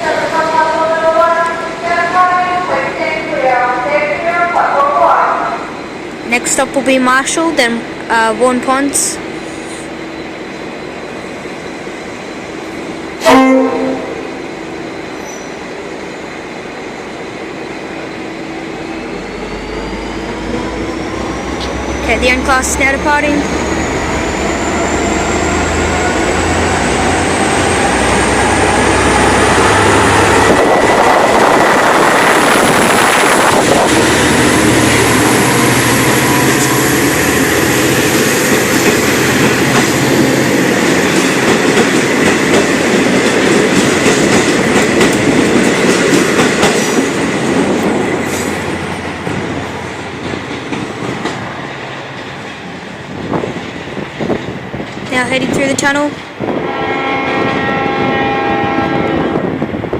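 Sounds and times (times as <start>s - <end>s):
rising train whine: 0.0s - 59.9s
locomotive engine drone: 4.6s - 42.2s.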